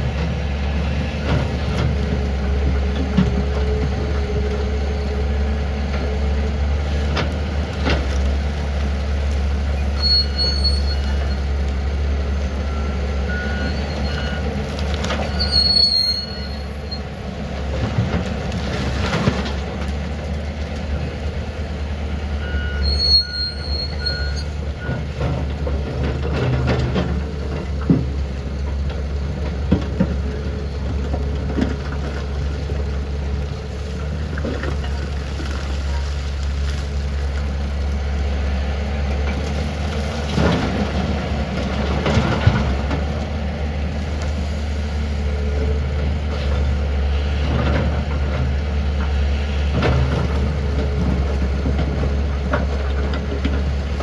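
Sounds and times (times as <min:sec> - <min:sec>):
excavator diesel engine running: 0:00.0 - 0:54.0
brief high squeals: 0:10.0 - 0:11.4, 0:15.3 - 0:17.0, 0:22.6 - 0:24.6.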